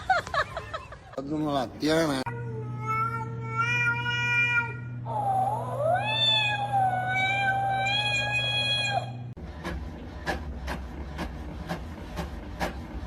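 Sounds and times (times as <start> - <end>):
cat meowing: 2.3 - 9.1.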